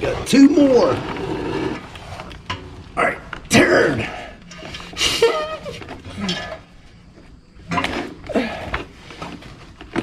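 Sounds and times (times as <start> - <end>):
grunts of effort: 3.5 - 4.4, 6.1 - 6.7, 8.2 - 8.9.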